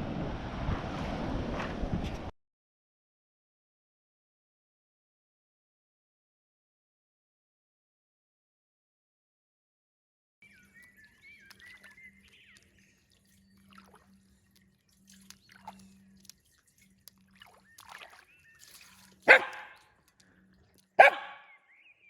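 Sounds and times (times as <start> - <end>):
dog whining: 19.3 - 19.7
dog barking: 19.3 - 19.8, 21.0 - 21.5.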